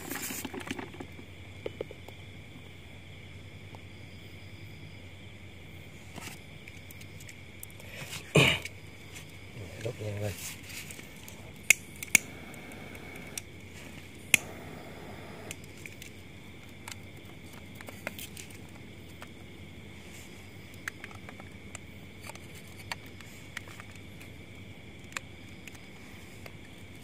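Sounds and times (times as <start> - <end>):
lighter flame hiss: 10.9 - 16.2
lighter clicking: 11.6 - 13.5, 14.2 - 15.6.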